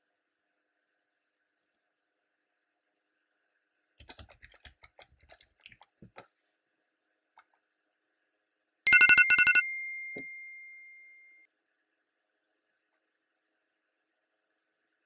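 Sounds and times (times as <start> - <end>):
computer keyboard typing: 4.0 - 6.2, 8.9 - 10.3
electronic timer alarm beeping: 8.9 - 11.4.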